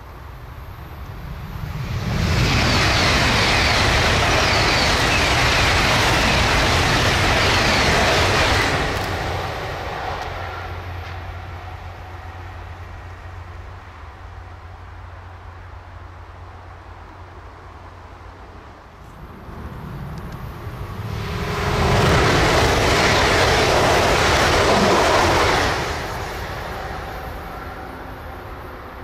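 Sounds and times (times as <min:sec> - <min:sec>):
high-speed train passing: 0:00.0 - 0:29.0.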